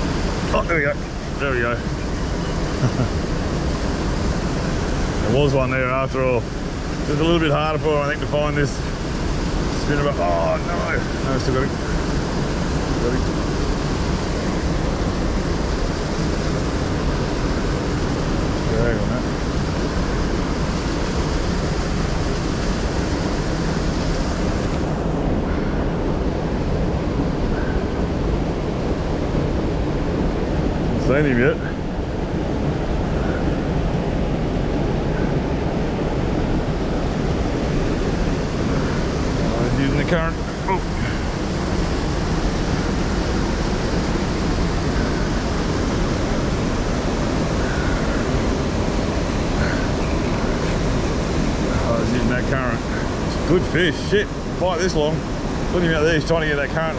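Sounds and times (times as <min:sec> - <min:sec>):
river rapids rushing: 0:00.0 - 0:56.9.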